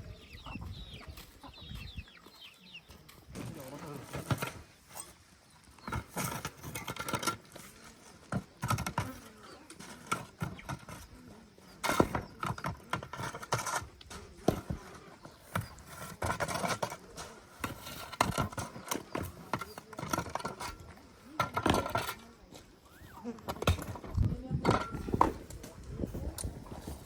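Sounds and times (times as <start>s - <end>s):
knocks and clatters: 11.8s - 22.2s.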